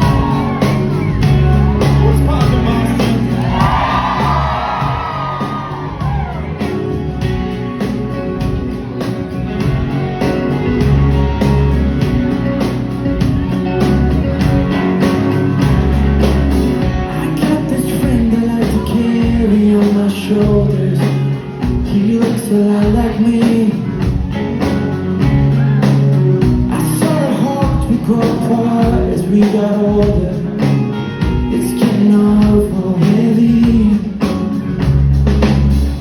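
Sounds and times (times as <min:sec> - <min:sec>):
drums steady beat: 0:00.0 - 0:36.0
rock band playing live: 0:00.0 - 0:36.0
person singing: 0:16.8 - 0:24.7, 0:26.7 - 0:34.4.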